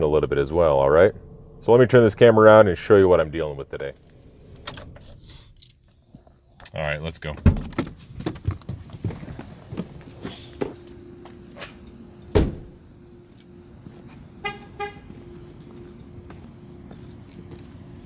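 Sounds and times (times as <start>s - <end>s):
steady low hum: 0.0s - 18.0s
heavy thud: 12.3s - 12.8s
vehicle horn chirping: 14.4s - 15.2s.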